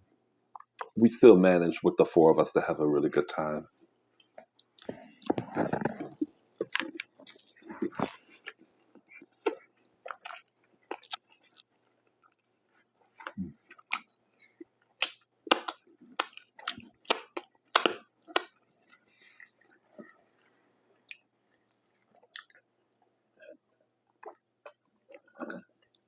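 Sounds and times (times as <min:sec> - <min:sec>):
wet mouth chewing clicks: 0:04.2 - 0:12.5, 0:15.0 - 0:19.8, 0:22.2 - 0:22.6, 0:24.2 - 0:25.6.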